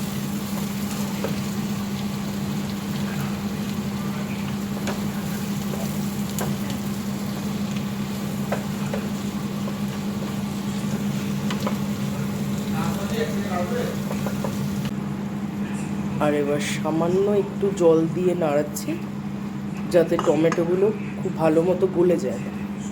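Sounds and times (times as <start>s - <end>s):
food sizzling in pan: 0.0s - 14.9s
steady low hum: 0.0s - 22.9s.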